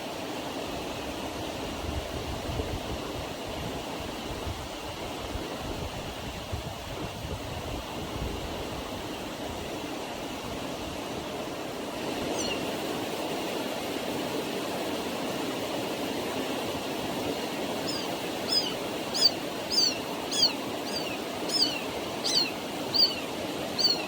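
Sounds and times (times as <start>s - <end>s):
short high-pitched falling calls: 12.3s - 12.7s, 17.8s - 24.0s.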